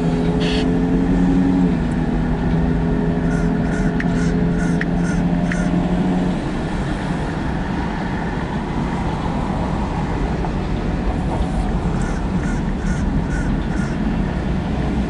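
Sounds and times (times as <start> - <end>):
steel wheels rumbling on rail: 3.2 - 15.0.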